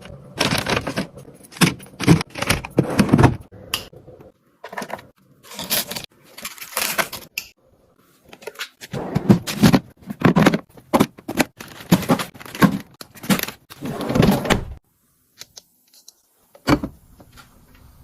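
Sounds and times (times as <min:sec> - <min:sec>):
plastic containers and bags rustling: 0:00.0 - 0:03.5, 0:04.6 - 0:07.4, 0:08.2 - 0:14.4.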